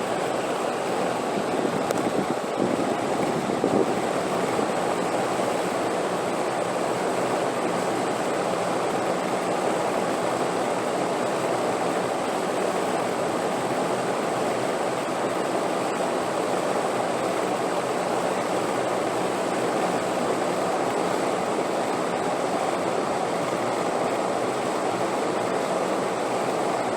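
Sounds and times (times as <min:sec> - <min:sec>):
wind blowing steadily: 0:00.0 - 0:06.4.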